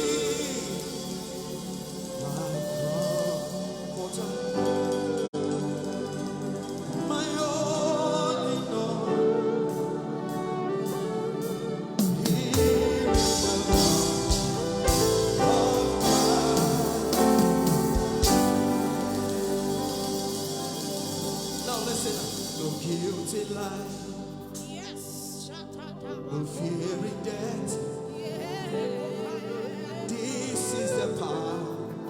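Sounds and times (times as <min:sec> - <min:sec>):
sustained accompaniment: 0:00.0 - 0:28.1
person singing: 0:00.0 - 0:32.0
drum beat: 0:12.0 - 0:22.8
bass: 0:12.8 - 0:22.6.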